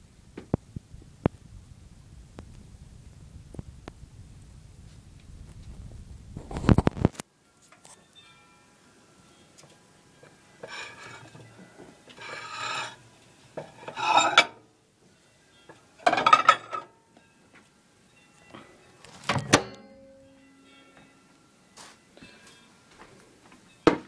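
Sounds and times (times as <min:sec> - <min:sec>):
scraping and rustling: 0:02.3 - 0:07.2, 0:10.6 - 0:13.0, 0:13.6 - 0:14.5
kitchenware clattering: 0:10.6 - 0:13.0, 0:13.6 - 0:14.6, 0:16.0 - 0:16.9.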